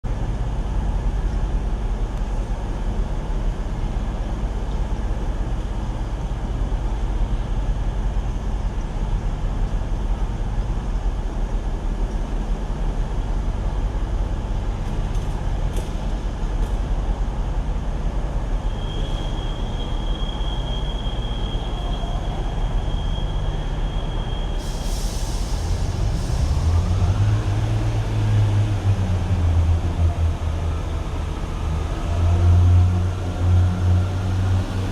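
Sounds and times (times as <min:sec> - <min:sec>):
train diesel engines rumbling: 0:00.1 - 0:34.9
air hiss: 0:24.6 - 0:26.9.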